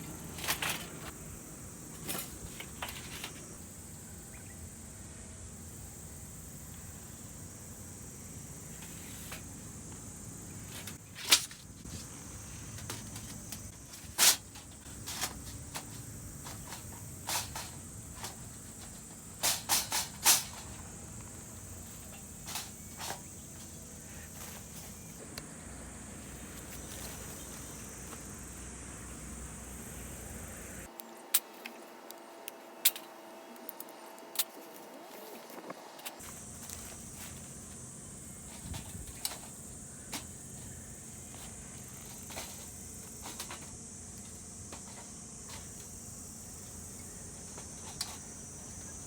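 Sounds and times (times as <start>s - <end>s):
high insect chirring: 0.0s - 30.9s, 36.2s - 49.0s.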